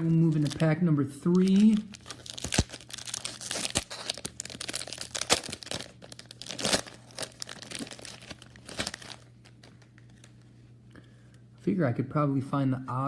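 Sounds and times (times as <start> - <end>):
wrapper tearing and crinkling: 0.0 - 10.4.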